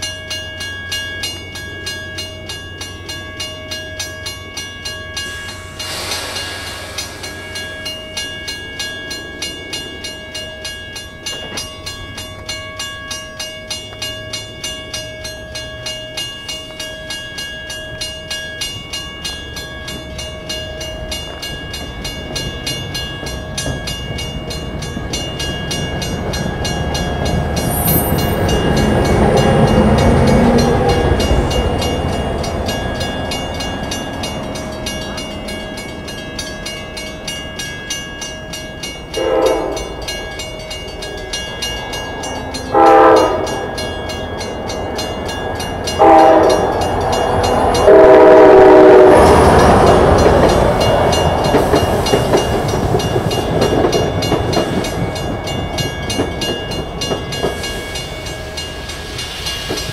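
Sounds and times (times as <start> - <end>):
level crossing bell ringing: 0.0 - 59.7
train rumbling past: 0.0 - 59.9
train horn: 39.2 - 40.0, 42.6 - 43.8, 46.0 - 49.9.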